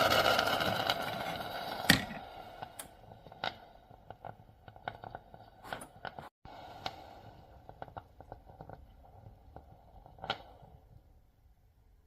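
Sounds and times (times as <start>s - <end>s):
coffee machine running: 0.0s - 2.4s.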